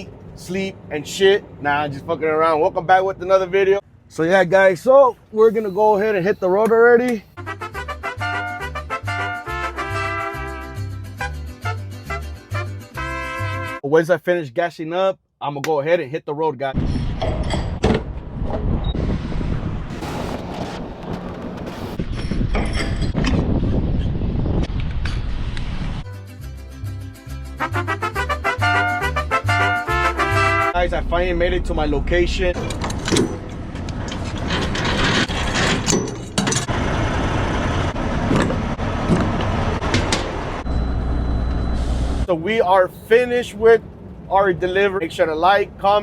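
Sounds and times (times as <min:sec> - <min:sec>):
wind buffeting microphone: 0:16.8 - 0:26.0
truck engine running: 0:30.8 - 0:32.8, 0:36.6 - 0:42.2
low mechanical rumble: 0:30.8 - 0:43.2.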